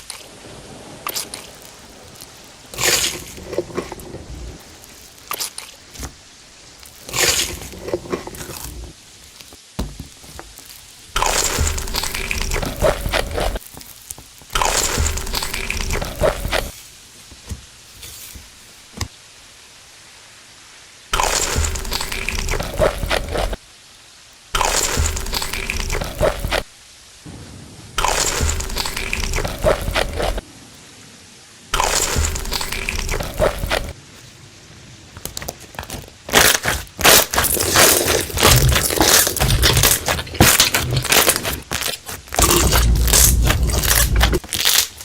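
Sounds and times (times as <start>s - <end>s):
loud wet crunching chewing: 1.0s - 6.1s, 6.8s - 9.5s, 10.6s - 16.8s, 21.2s - 23.6s, 24.6s - 26.7s, 28.0s - 30.4s, 31.8s - 34.0s, 35.4s - 45.0s
sharp crunches: 11.1s - 16.8s, 21.2s - 23.6s, 24.6s - 26.7s, 28.0s - 30.4s, 31.8s - 34.0s, 35.8s - 45.0s.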